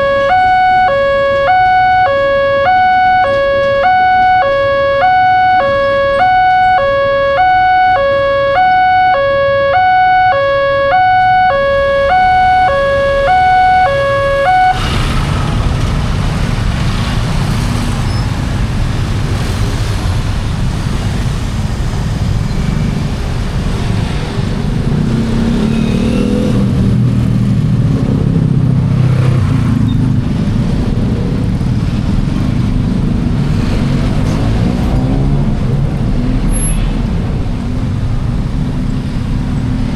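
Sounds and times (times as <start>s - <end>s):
level-crossing alarm two-tone: 0.0s - 14.9s
traffic engine rumble: 0.0s - 39.9s.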